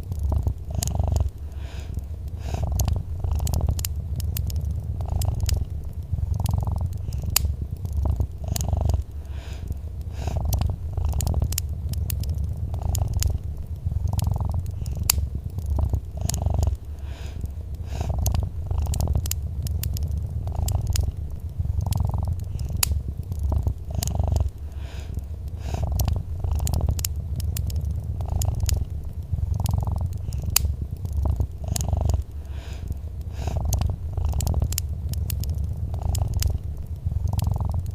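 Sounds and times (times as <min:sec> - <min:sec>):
cat purring: 0:00.0 - 0:37.9
wood fire crackling: 0:00.0 - 0:37.9.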